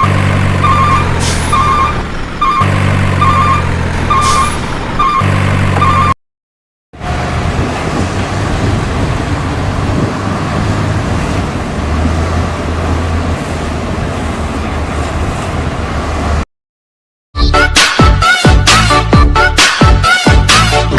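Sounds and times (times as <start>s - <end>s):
reversing beeper: 0.0s - 6.2s
truck engine rumbling: 0.0s - 6.2s, 7.0s - 16.4s
music: 17.4s - 20.9s.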